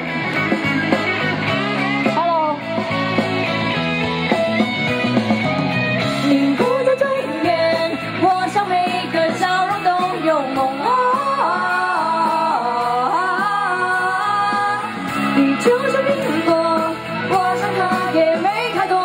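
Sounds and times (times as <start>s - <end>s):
guitar accompaniment: 0.0s - 19.0s
woman singing: 6.2s - 19.0s.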